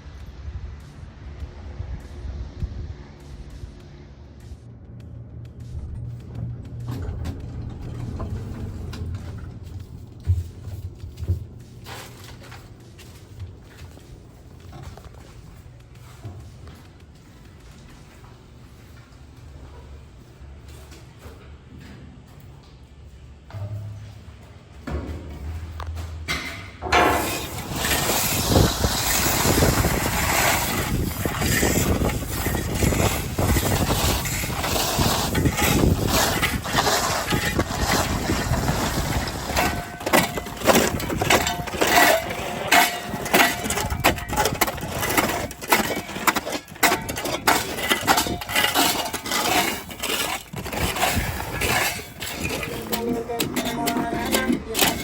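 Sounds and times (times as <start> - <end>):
gravel being scraped and shovelled: 26.9 - 55.0.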